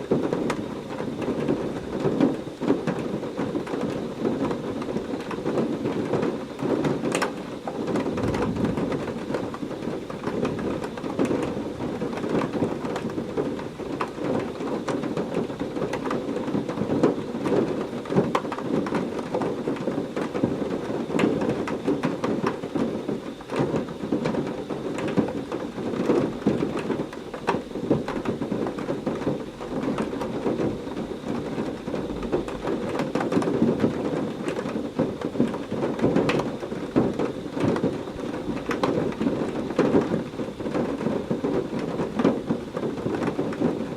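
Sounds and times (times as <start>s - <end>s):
heavy rain falling: 0.0s - 43.9s
low thunder rumbling: 7.8s - 14.0s.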